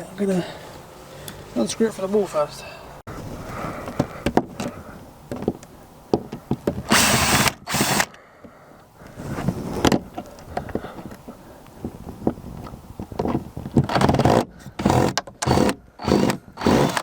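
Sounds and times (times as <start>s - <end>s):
cordless drill driver whirring: 6.9s - 8.2s, 13.9s - 17.0s.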